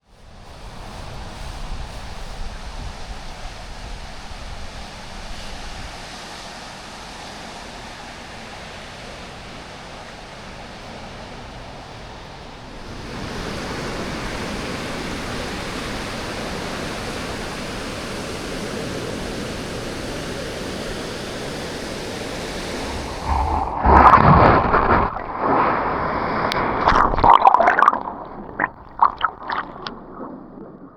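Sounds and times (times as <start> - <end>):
ocean surf washing onto beach: 5.9 - 30.9
underwater sloshing and gurgling: 22.4 - 30.9.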